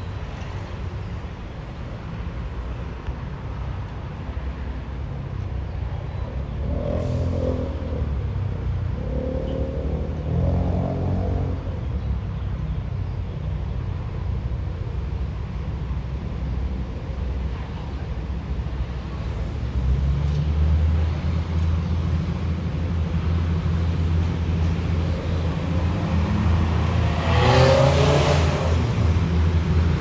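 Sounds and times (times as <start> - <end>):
diesel train engine rumble: 11.6 - 26.8.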